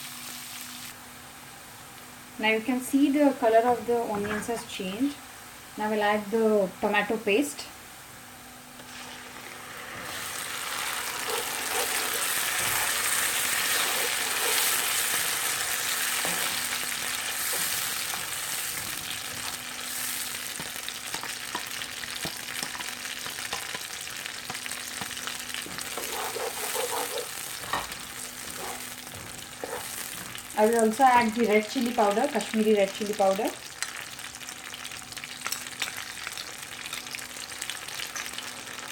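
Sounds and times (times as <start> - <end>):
paste sizzling in hot oil: 8.8 - 32.7.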